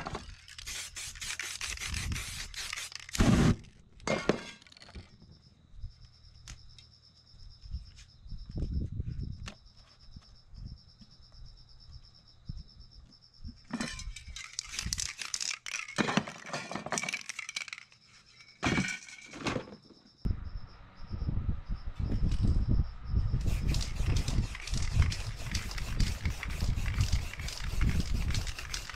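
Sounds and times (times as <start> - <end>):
paper stencils rustling: 0.3 - 3.2, 14.4 - 16.0, 23.5 - 28.9
spray paint hissing: 0.4 - 3.5, 23.4 - 28.9.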